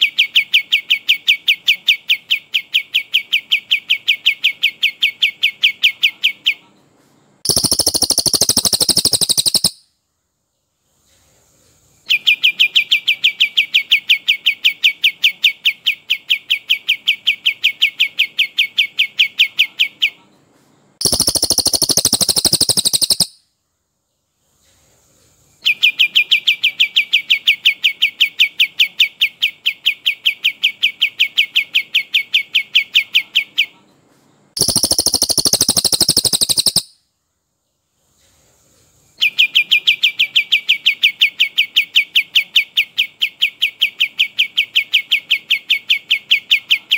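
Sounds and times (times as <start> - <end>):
high-pitched bird song: 0.0 - 6.6, 7.5 - 10.0, 12.1 - 20.2, 21.0 - 23.5, 25.6 - 33.8, 34.6 - 37.0, 39.2 - 46.9
bird rapid repeated notes: 7.5 - 9.8, 21.0 - 23.4, 34.6 - 36.9.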